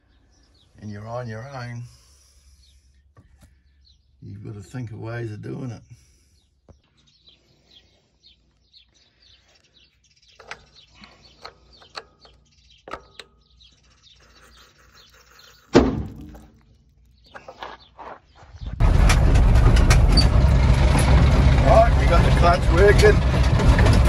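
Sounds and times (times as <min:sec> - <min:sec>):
faint birds chirping: 0:00.0 - 0:18.8
loud thump: 0:15.7 - 0:16.4.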